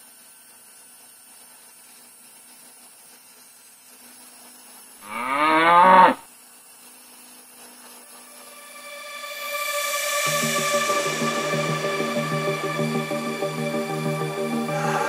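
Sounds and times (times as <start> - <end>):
faint steady hum: 3.6 - 15.0
cow mooing: 5.0 - 6.2.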